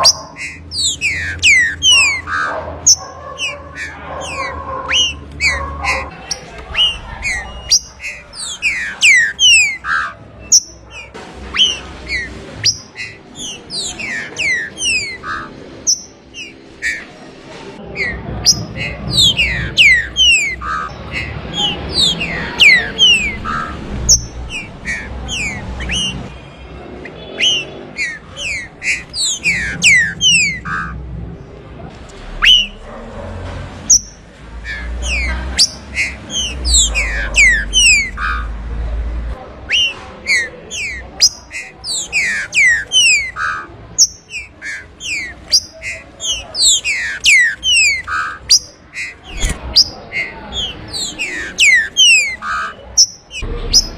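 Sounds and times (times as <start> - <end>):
bird singing whistled notes: 0.0 - 5.6, 6.3 - 17.1, 18.0 - 26.3, 27.2 - 30.9, 32.4 - 32.8, 49.8 - 53.9.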